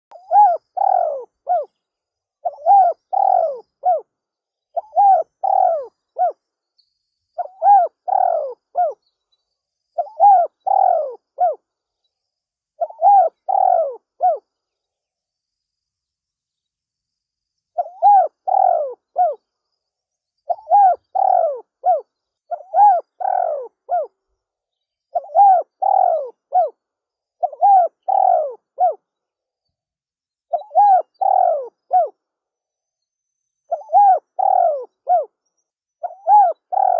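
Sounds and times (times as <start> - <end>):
dove cooing: 0.1 - 1.7, 2.4 - 4.1, 4.8 - 6.4, 7.4 - 9.0, 10.0 - 11.6, 12.8 - 14.4, 17.8 - 19.4, 20.5 - 24.2, 25.2 - 26.8, 27.4 - 29.0, 30.5 - 32.2, 33.7 - 35.3, 36.0 - 36.9.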